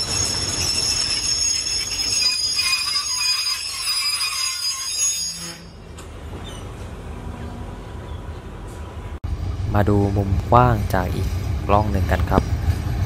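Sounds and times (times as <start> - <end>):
high-pitched metallic squeal: 0.0 - 6.8
train rumble: 0.0 - 13.0.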